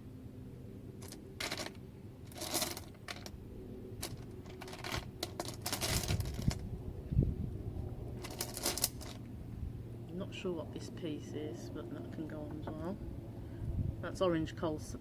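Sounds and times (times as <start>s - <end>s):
stones clicking: 1.0s - 3.4s, 4.0s - 6.6s, 8.2s - 9.2s.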